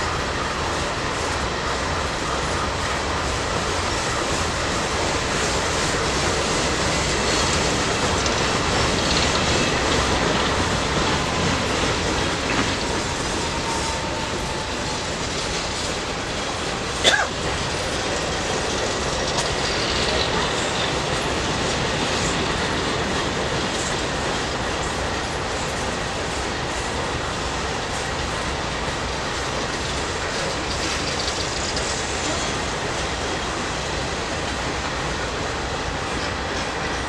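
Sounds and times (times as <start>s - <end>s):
train wheels rumbling and rattling: 0.0s - 37.0s
high wheel squeal: 8.8s - 16.0s.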